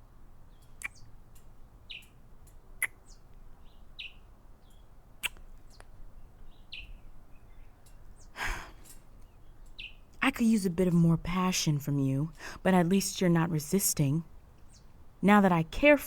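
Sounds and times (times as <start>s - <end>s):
lip smacks and kisses: 5.2s - 5.9s.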